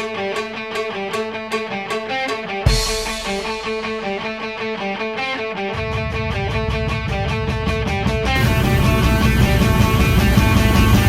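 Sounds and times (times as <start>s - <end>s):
picked guitar riff: 0.0s - 11.0s
bass and drums: 2.7s - 4.5s, 5.7s - 11.0s.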